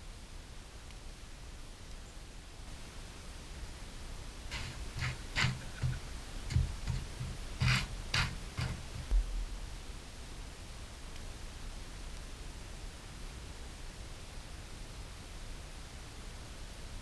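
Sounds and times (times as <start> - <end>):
light taps and clicks: 4.5 - 9.3
dull low knock: 4.6 - 9.7.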